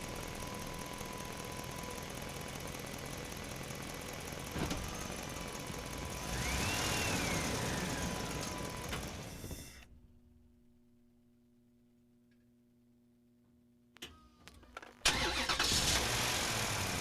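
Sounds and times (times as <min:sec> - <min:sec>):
motor whine: 0:04.5 - 0:09.9.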